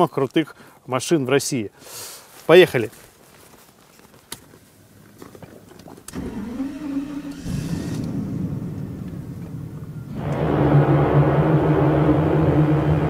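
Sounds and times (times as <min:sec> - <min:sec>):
car engine idling: 0:06.1 - 0:10.6
starter cranking with whine: 0:06.1 - 0:11.0.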